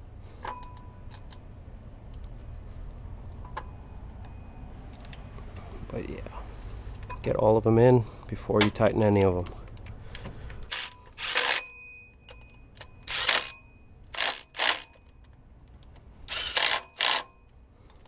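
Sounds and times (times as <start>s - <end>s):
impact wrench bursts: 10.6s - 11.8s, 12.8s - 15.1s, 16.3s - 17.5s.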